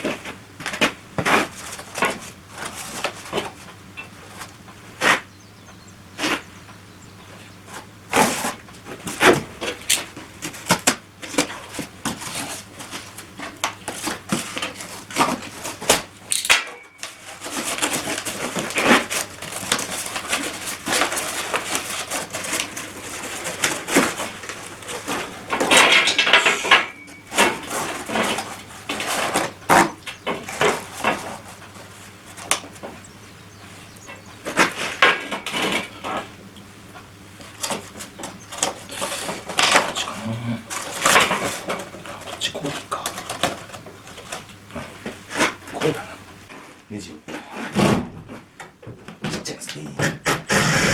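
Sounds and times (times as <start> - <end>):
metal parts clinking and clanking: 14.4 - 31.8.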